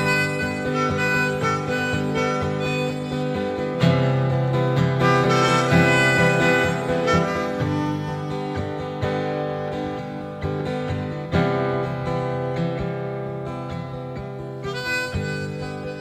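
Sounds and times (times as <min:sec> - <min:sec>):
harmonica: 0:00.0 - 0:10.2, 0:14.6 - 0:16.0
acoustic guitar strumming: 0:00.0 - 0:16.0.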